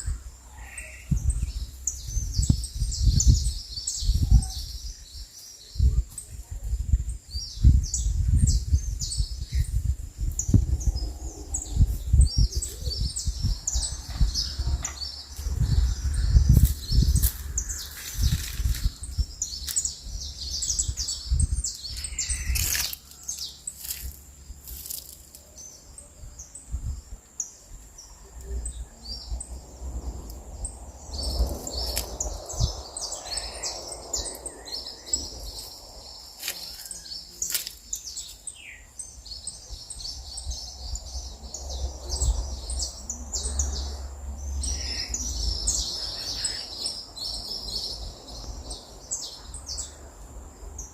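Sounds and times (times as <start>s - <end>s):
songbirds chirping and singing: 0.0s - 50.9s
low rumble: 5.8s - 24.9s, 27.9s - 36.4s.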